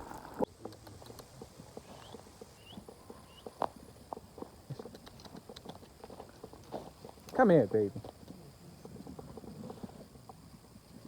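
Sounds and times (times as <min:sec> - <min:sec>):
footsteps crunching on stony ground: 0:01.4 - 0:04.9, 0:05.7 - 0:10.5.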